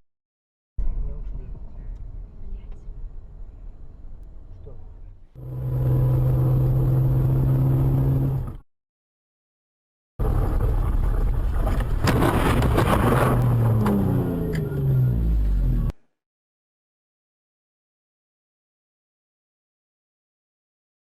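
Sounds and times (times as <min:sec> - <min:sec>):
road noise: 0:00.8 - 0:08.6, 0:10.2 - 0:16.0
vehicle engine drone: 0:00.8 - 0:08.6, 0:10.2 - 0:16.1
car crash impacts and clatter: 0:10.2 - 0:14.1.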